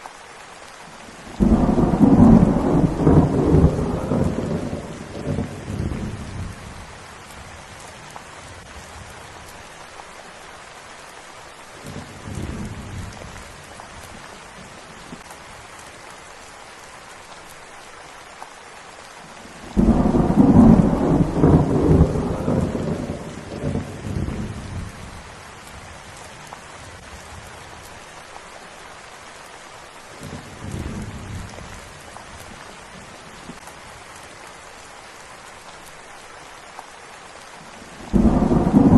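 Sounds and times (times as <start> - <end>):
steady rain: 0.0 - 38.9
thunder rumbling: 1.3 - 6.9, 19.7 - 25.3, 38.0 - 38.9.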